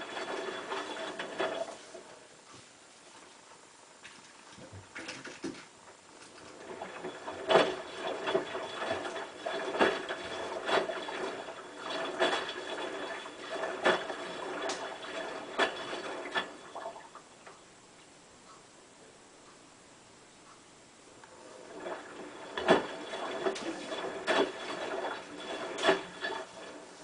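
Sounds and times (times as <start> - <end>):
water running into washing machine: 0.0 - 2.1, 4.6 - 17.2, 21.5 - 27.0
faint steady whine: 0.0 - 27.0.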